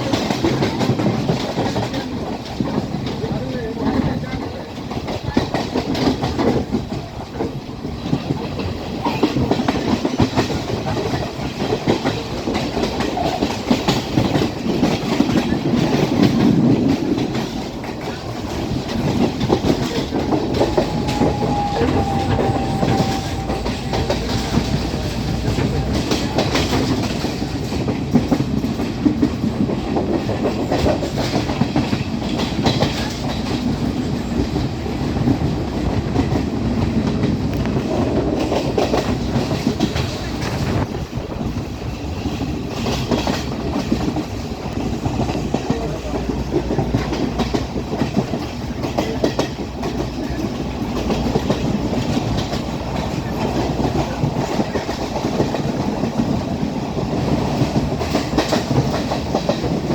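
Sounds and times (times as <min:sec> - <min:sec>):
train rumbling along track: 0:00.0 - 0:59.9
faint thin tone: 0:20.6 - 0:24.1.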